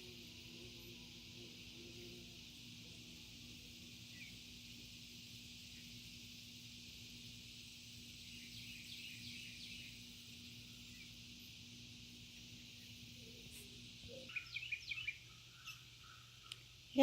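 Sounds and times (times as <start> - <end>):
steady high hiss: 0.0 - 17.0
bird chirps: 4.0 - 4.6, 8.2 - 11.5, 12.3 - 16.7.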